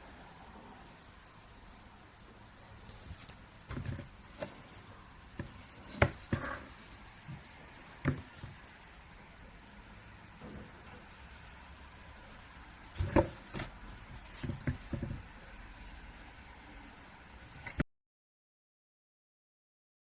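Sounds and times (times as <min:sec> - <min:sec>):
handling knocks and clicks: 0:13.0 - 0:15.3.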